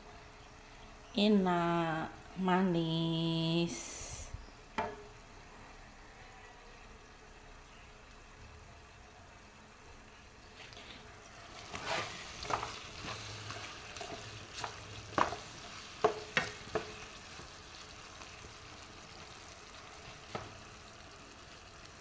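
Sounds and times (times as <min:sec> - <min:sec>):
potatoes sizzling in a pan: 0:06.7 - 0:22.0
spatula scraping and knocking pan: 0:11.5 - 0:17.5.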